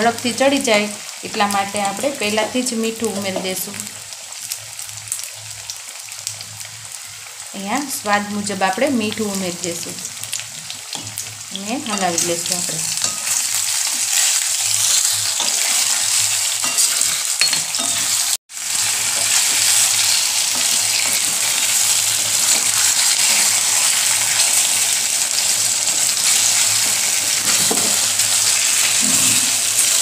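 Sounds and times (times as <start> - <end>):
potatoes sizzling in hot oil: 0.0 - 30.0
spoon stirring in a pan: 10.4 - 30.0.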